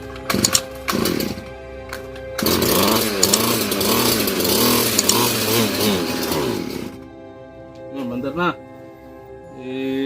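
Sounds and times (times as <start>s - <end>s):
two-stroke engine surging: 0.0s - 1.5s, 2.4s - 7.1s.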